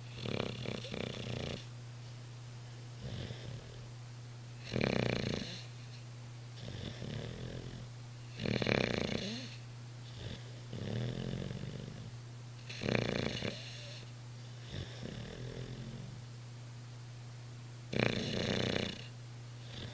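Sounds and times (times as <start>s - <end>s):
dog snoring: 0.0s - 1.7s, 3.0s - 3.9s, 4.6s - 6.0s, 6.6s - 16.2s, 17.9s - 19.9s.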